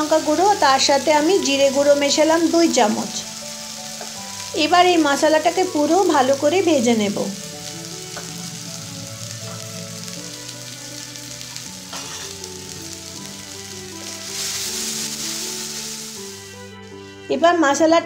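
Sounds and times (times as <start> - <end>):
spice paste sizzling in hot oil: 0.0 - 17.8.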